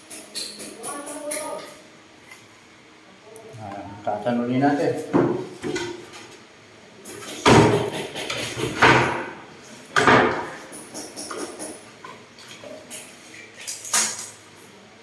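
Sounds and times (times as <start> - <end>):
heavy knocks on wood: 7.5 - 9.3.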